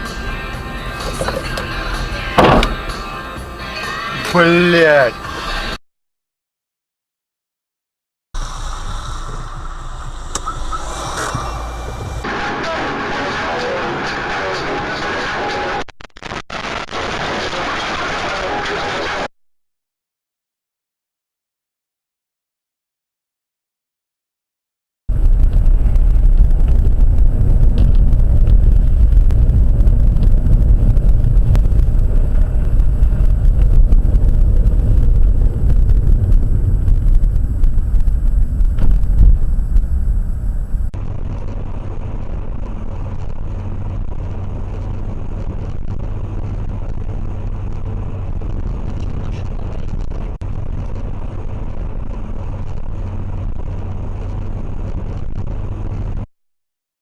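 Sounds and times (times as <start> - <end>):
car driving rumble from inside: 0.0 - 3.4, 25.1 - 56.2.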